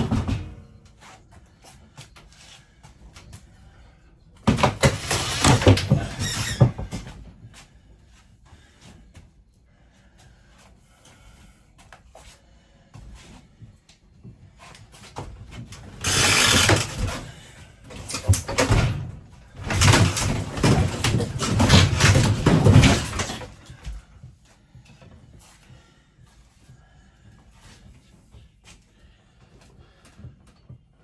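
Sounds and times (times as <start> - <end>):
wall paneling ripping and cracking: 15.8 - 18.8.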